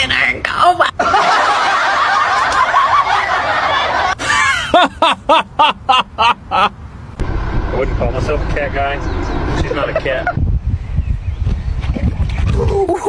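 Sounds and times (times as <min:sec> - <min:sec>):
person laughing: 0:04.1 - 0:06.7, 0:12.6 - 0:13.0.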